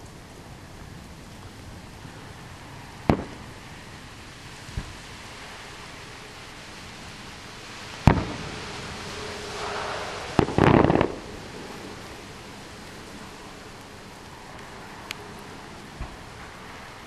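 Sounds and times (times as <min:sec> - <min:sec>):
fireworks crackle: 0:00.0 - 0:17.0
steady hiss: 0:00.0 - 0:17.0
fireworks bangs: 0:03.0 - 0:03.8, 0:07.9 - 0:12.2.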